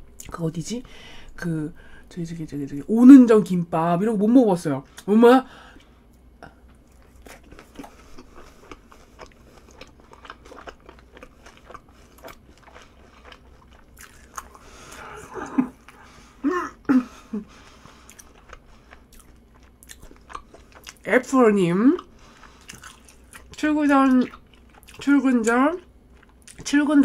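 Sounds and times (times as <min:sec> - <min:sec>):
chewing crispy food: 0:05.8 - 0:16.4, 0:17.1 - 0:26.8.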